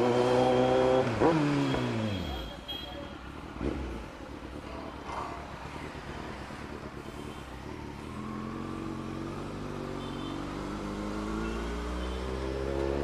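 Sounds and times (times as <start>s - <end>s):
motorcycle engine pulling away: 0.0s - 2.2s, 5.4s - 13.0s.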